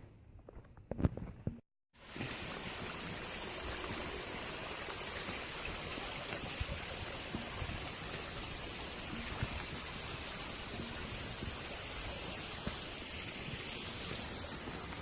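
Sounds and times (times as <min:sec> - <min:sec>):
steady rushing hiss: 0:06.3 - 0:15.0.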